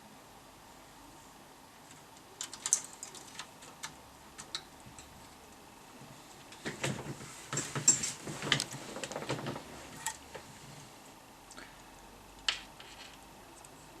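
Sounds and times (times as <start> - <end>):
handling clicks and rattles: 1.9 - 5.2.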